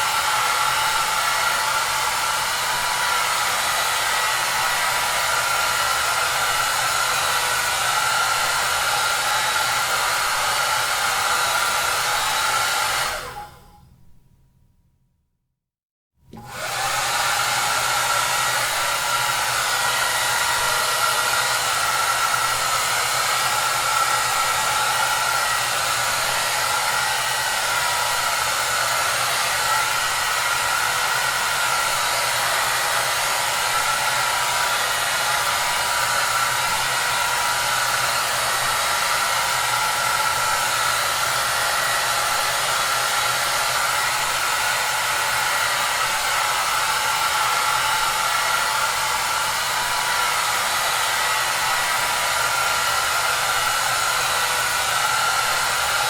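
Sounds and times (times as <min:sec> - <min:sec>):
hair dryer blowing: 0:00.0 - 0:13.8, 0:16.3 - 0:56.0.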